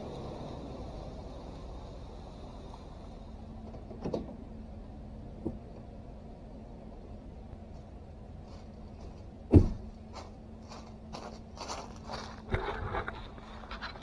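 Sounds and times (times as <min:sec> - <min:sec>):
footsteps crunching: 0:07.8 - 0:14.0
heavy thud: 0:09.5 - 0:10.0
rustling: 0:09.8 - 0:14.0.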